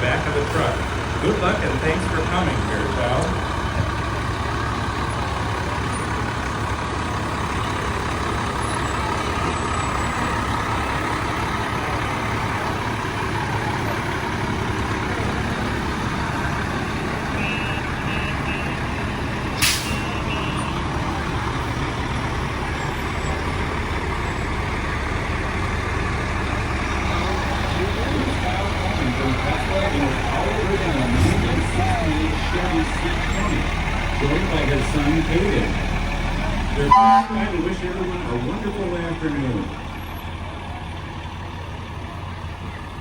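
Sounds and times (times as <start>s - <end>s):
truck diesel engine running: 0.0s - 43.0s
air brake hiss: 19.6s - 20.2s.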